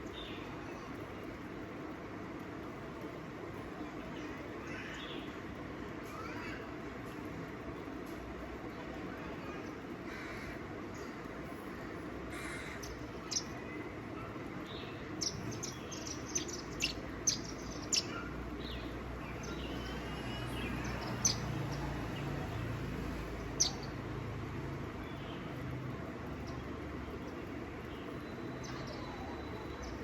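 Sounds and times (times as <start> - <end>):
birds chirping: 8.6 - 30.0.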